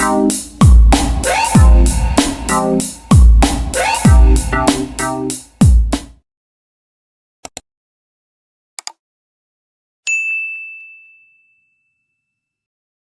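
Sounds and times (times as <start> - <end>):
bright bell-like ding: 10.1 - 12.5.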